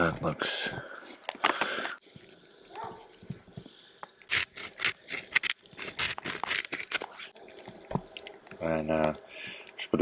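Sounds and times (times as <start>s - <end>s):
scrapes and clicks of objects: 4.3s - 7.4s.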